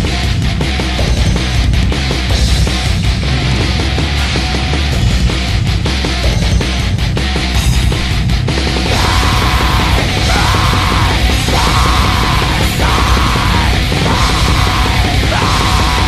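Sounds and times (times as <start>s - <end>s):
black metal music: 0.0s - 16.0s
harsh yelled vocal: 8.8s - 16.0s.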